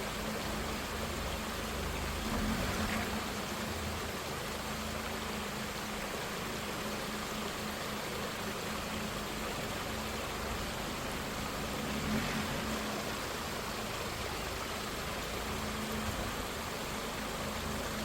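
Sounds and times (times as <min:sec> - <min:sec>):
stream water rushing: 0:00.0 - 0:18.0.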